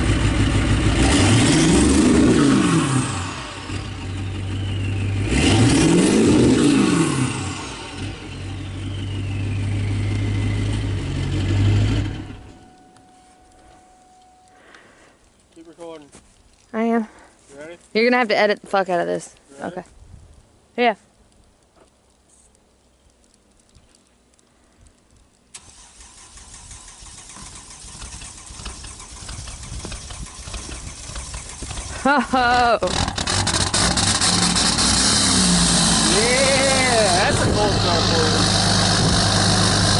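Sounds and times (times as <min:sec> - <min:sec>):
diesel engine revving and idling: 0:00.0 - 0:12.6, 0:25.6 - 0:39.9
high turbo whistle: 0:03.7 - 0:05.9, 0:07.4 - 0:11.0.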